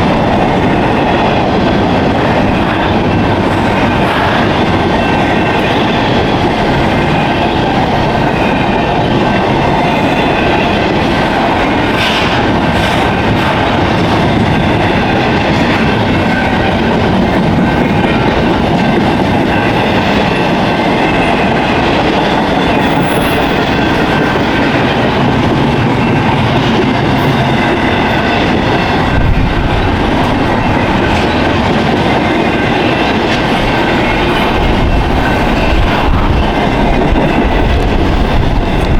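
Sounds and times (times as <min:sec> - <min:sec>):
freight train cars rolling past: 0:00.0 - 0:38.9.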